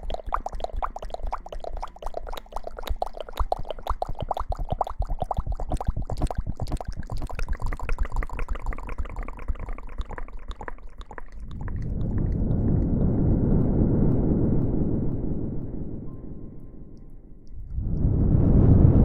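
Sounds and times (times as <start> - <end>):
wet squishing strokes: 8.7 - 15.7
steady rushing noise: 11.4 - 19.0.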